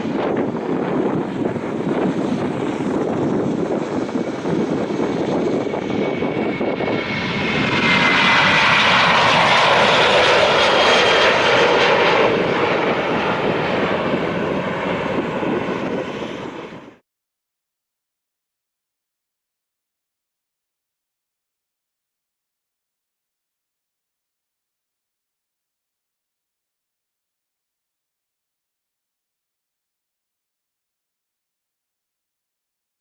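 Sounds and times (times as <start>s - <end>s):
jet airliner engine rumble: 0.0s - 17.0s.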